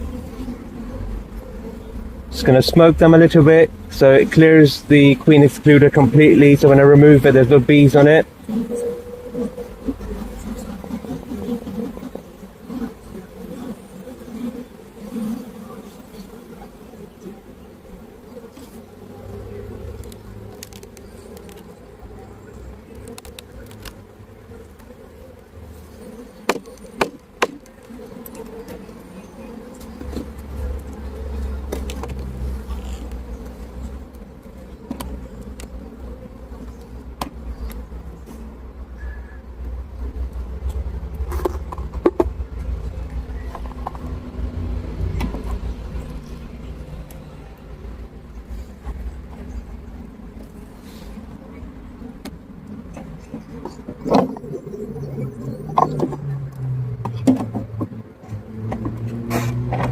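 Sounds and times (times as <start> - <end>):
bees buzzing: 0.0 - 59.9
hive tool scraping wood: 2.4 - 38.7, 57.0 - 59.9
sharp clicks and knocks: 55.7 - 59.9.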